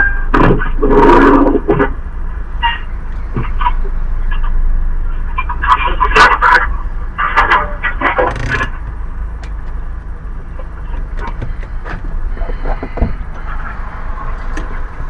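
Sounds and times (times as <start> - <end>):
car rumbling along road: 6.7 - 15.0
sharp knocks: 8.3 - 9.8, 11.0 - 12.1.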